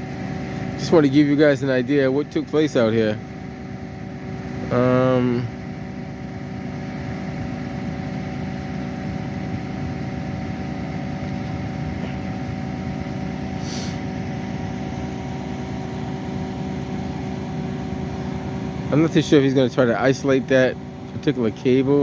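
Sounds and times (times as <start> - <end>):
large vehicle engine idling: 0.0 - 22.0
brief hiss: 13.6 - 14.0.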